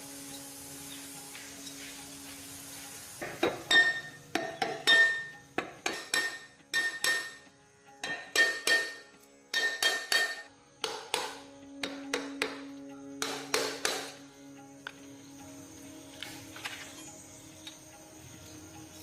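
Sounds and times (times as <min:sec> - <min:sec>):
hammer blows on metal: 0:03.2 - 0:14.2.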